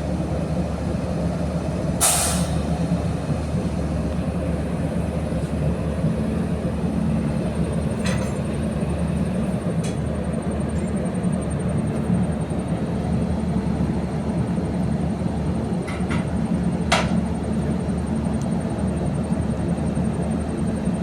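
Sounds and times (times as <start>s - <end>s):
train rumbling: 0.0s - 21.0s
short sharp hiss: 2.0s - 2.7s.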